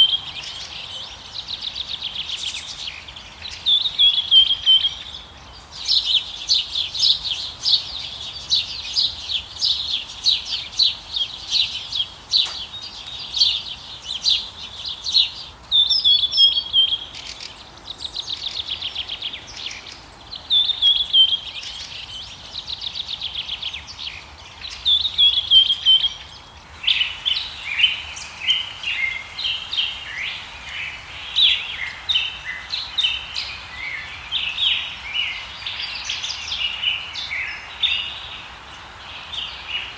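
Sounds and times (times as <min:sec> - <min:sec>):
birds chirping and whistling: 0:00.0 - 0:22.8, 0:24.7 - 0:30.7.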